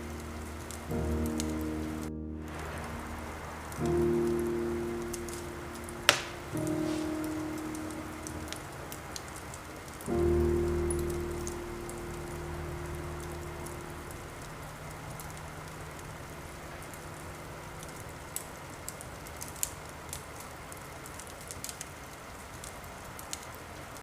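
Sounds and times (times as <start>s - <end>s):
low held music tone: 0.0s - 18.8s
fireplace crackling: 0.0s - 24.0s
steady rain: 0.0s - 24.0s.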